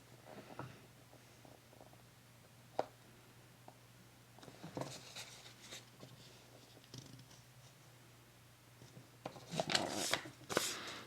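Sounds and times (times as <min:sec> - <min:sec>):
paper rustling: 0:09.5 - 0:11.0.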